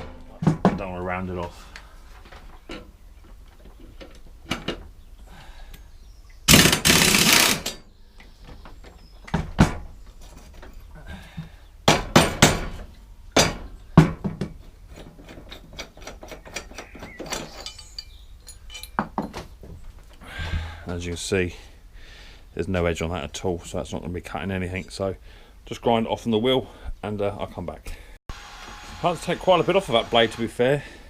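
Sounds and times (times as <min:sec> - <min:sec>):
metal rattling: 0:14.9 - 0:19.5
metal knocks of hand tools: 0:15.2 - 0:19.5.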